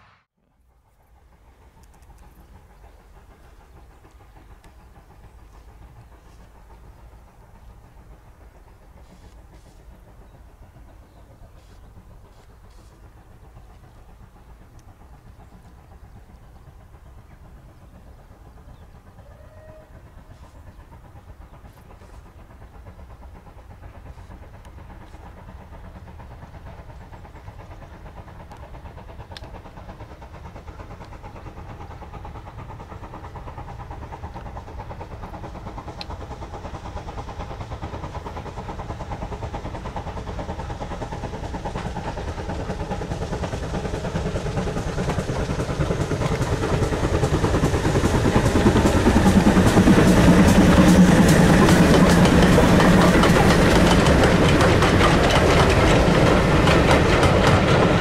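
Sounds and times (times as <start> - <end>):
train rumbling: 0.0 - 58.0.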